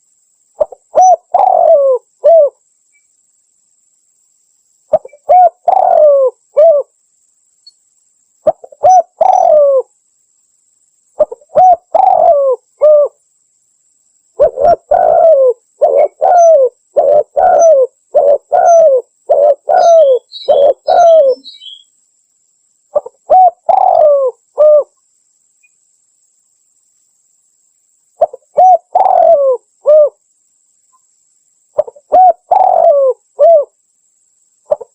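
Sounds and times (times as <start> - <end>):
faint high bird chirps: 0.0 - 3.3, 4.8 - 10.0, 14.3 - 22.0, 22.9 - 27.1, 28.2 - 30.2
dove cooing: 0.6 - 2.6, 4.9 - 6.9, 8.4 - 9.9, 11.2 - 13.2, 14.4 - 21.8, 22.9 - 24.9, 28.2 - 30.2, 31.8 - 33.8, 34.7 - 34.9.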